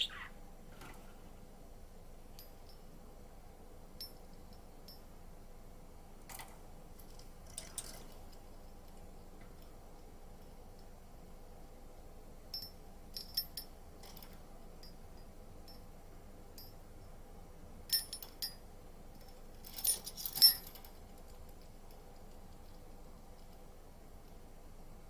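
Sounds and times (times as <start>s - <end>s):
metallic clinks from birdcage: 7.0s - 8.2s, 12.5s - 15.9s, 17.9s - 21.2s.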